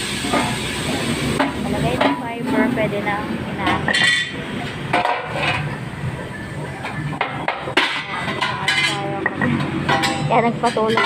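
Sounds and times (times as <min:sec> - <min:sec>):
voices: 0:01.4 - 0:11.0.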